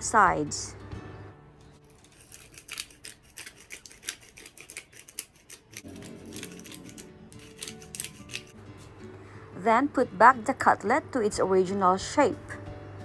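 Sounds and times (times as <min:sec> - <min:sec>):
soft background music: 0:00.0 - 0:13.0
pepper grinder clicking: 0:01.9 - 0:08.5.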